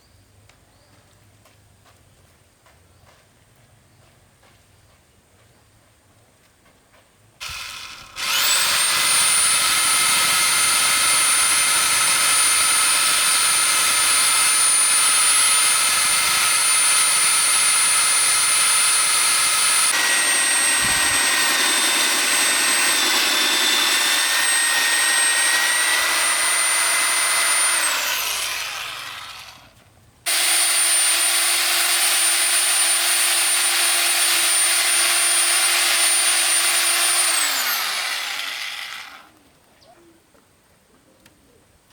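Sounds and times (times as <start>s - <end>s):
electric power tool whining: 7.4s - 39.4s.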